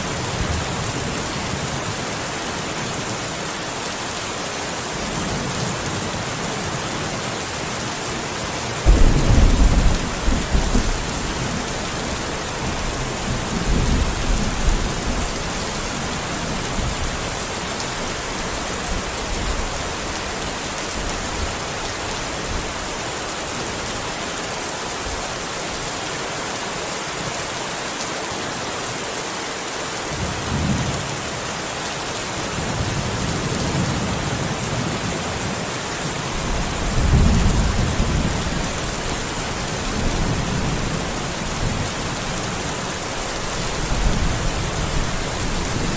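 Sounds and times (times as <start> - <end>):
heavy rain: 0.0 - 45.9
thunder clap and rumble: 8.8 - 15.3, 36.4 - 42.3
distant rolling thunder: 8.8 - 17.4, 36.3 - 45.9.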